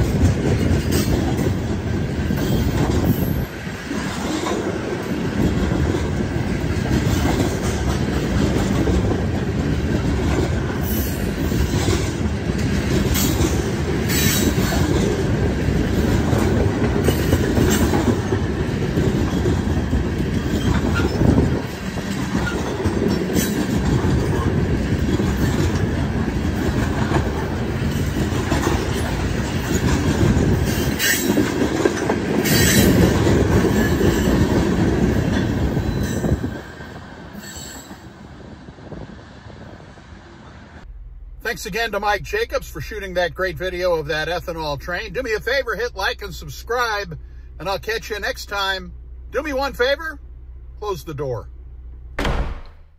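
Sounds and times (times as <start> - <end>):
wheels clacking over track: 0.0 - 36.4
train wheels rumbling on rail: 0.0 - 50.6.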